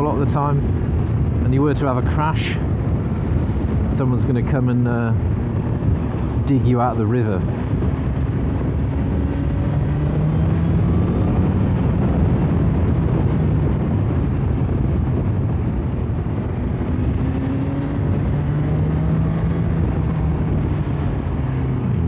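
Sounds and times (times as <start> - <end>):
motorcycle engine running: 7.4 - 22.0.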